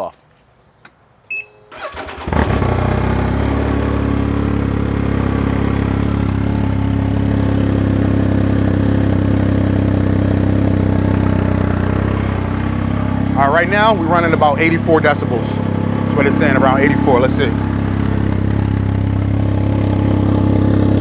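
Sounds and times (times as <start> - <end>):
short electronic beep: 1.3 - 1.7
engine cranking and idling: 1.7 - 21.0.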